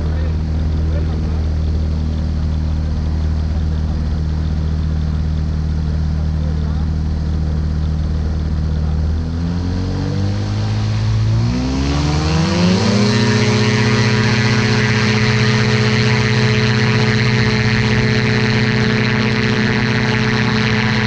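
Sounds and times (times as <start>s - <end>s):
ultralight aircraft engine and propeller: 0.0s - 21.0s.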